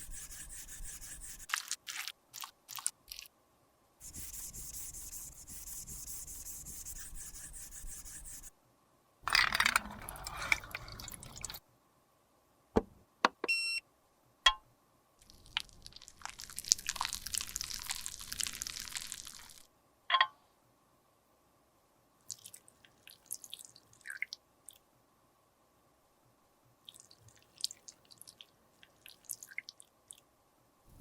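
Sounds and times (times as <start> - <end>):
scraping and rubbing makeup: 0.0 - 1.7, 4.0 - 8.5, 9.3 - 11.6.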